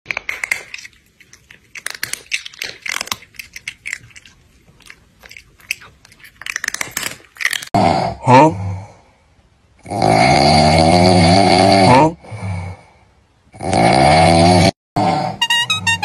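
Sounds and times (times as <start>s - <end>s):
crunchy chewing of food: 0.1s - 7.8s.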